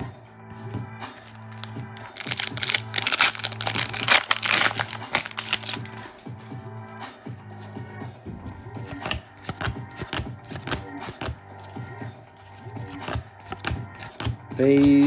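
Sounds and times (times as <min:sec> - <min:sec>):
quiet background music: 0:00.0 - 0:15.0
trading cards clicking and snapping: 0:01.2 - 0:06.1, 0:08.8 - 0:11.4, 0:12.8 - 0:15.0.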